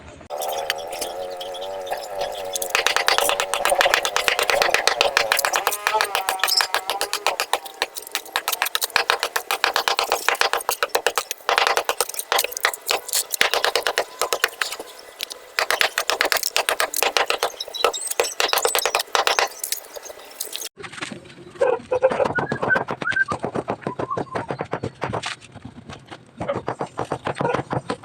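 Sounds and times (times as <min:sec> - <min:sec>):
rapid rattling clicks: 0:00.3 - 0:20.7.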